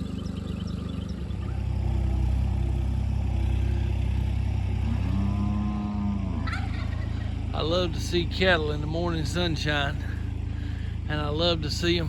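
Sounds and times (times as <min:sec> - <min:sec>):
vehicle engine idling: 0:00.0 - 0:12.0
cow mooing: 0:04.8 - 0:07.2.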